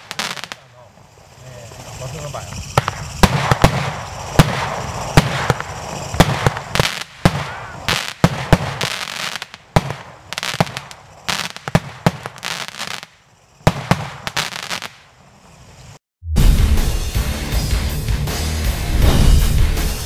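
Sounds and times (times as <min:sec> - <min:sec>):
firework bangs: 0:00.0 - 0:15.1
fireworks crackling: 0:00.0 - 0:16.0.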